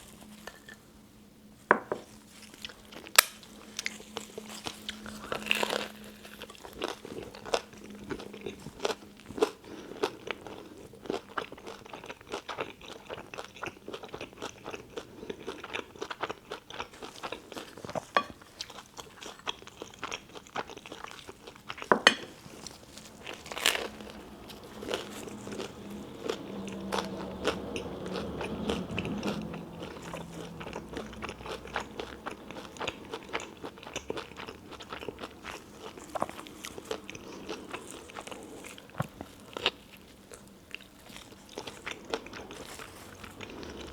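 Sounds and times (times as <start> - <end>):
wet chewing: 2.0 - 43.9
crunchy sandwich bites: 16.7 - 27.0.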